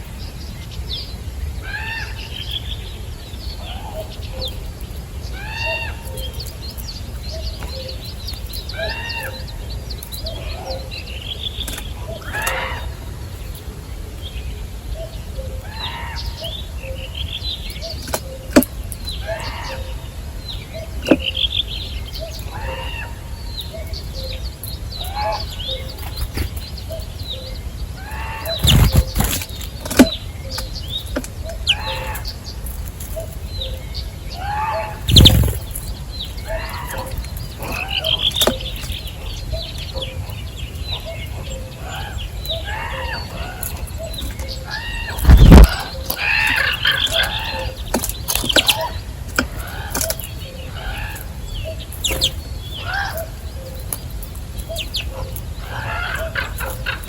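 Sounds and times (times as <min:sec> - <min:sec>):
birds chirping: 0:00.0 - 0:57.0
sharp clicks: 0:28.5 - 0:31.4, 0:35.1 - 0:35.8.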